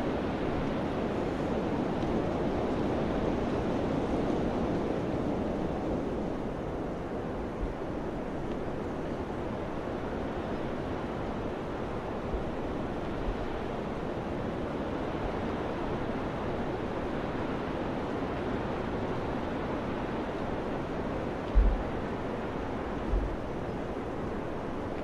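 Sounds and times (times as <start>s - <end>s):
wind gusts thumping microphone: 0.5s - 8.5s, 21.2s - 25.0s
wind blowing: 20.8s - 24.8s.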